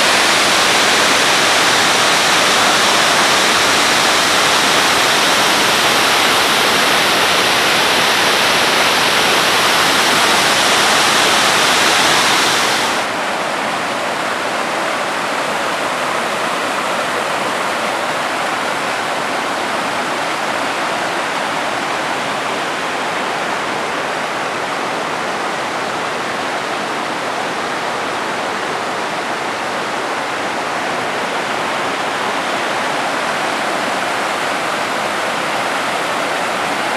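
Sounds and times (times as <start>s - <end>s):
waterfall rushing: 0.0s - 36.9s.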